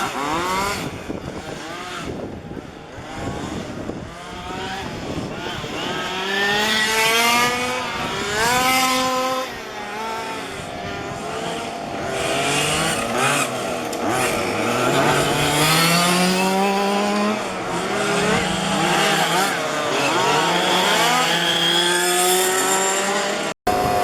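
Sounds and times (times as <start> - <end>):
small two-stroke engines revving: 0.0 - 24.0.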